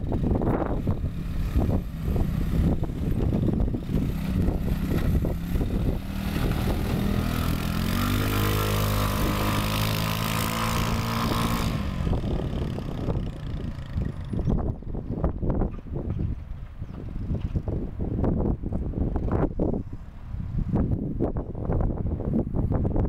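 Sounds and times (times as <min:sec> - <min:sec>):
buggy engine revving: 0:00.0 - 0:16.0.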